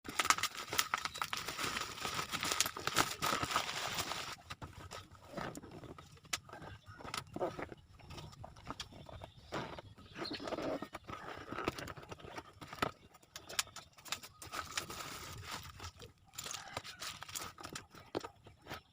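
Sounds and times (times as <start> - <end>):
packaging crinkling and rustling: 0.1 - 6.1, 10.2 - 18.4.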